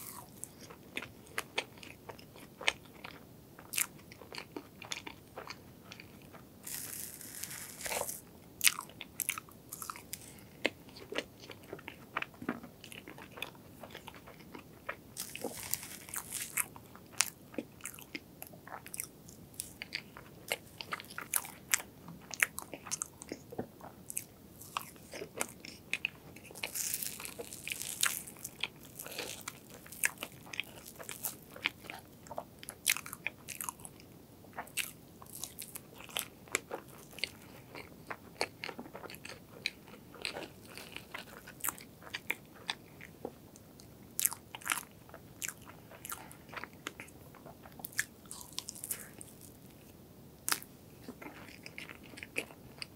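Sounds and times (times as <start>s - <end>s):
wet chewing: 4.9s - 33.9s.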